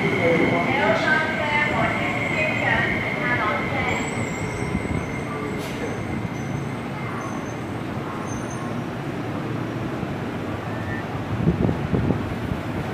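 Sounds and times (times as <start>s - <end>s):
electric train rumbling past: 0.0s - 12.9s
wind buffeting microphone: 0.1s - 6.3s, 11.2s - 12.9s.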